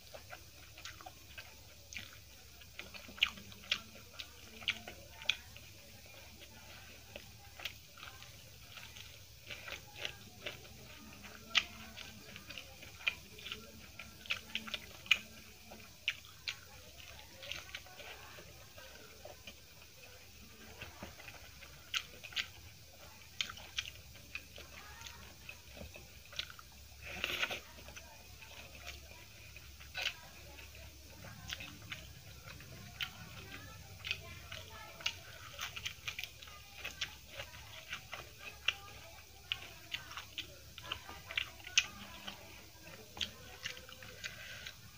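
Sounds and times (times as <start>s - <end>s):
person chewing and biting: 0.0s - 44.9s
sharp crunches while eating: 0.0s - 44.9s.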